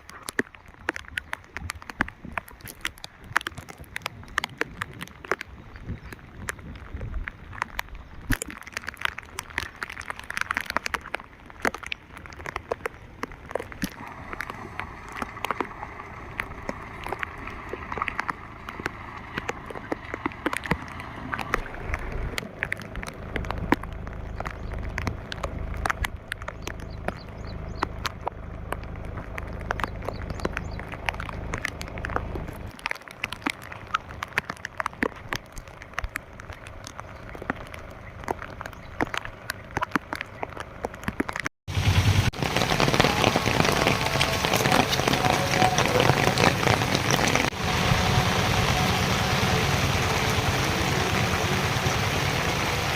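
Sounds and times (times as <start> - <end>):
rain falling: 0.0 - 52.9
raindrops ticking on surface: 0.0 - 52.9
low rumble: 13.3 - 32.7, 41.7 - 52.9.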